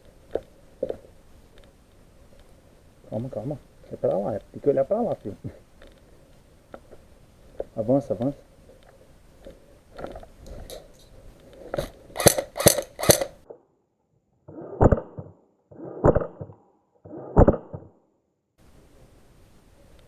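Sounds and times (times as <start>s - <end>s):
airsoft gun shots: 12.2s - 13.4s.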